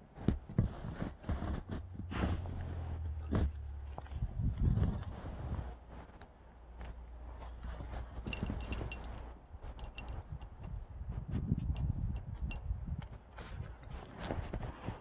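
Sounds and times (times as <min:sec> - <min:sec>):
dog digging in snow: 0:00.2 - 0:06.1
metal collar tags jingling: 0:08.0 - 0:10.9, 0:11.7 - 0:12.7.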